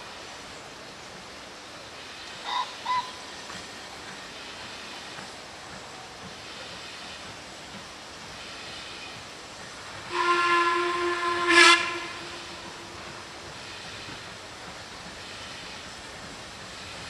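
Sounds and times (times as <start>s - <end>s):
steady steam hiss: 0.0s - 17.0s
steam locomotive whistle: 10.1s - 14.2s.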